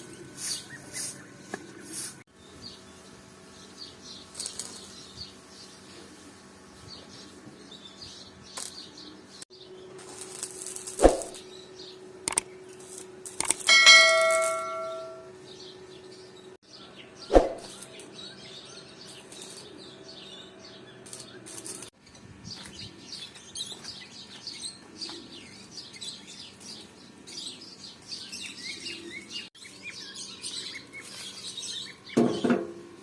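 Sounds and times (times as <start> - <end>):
birds chirping: 0.0 - 10.0, 13.6 - 32.6
metal struck and ringing: 13.7 - 15.4.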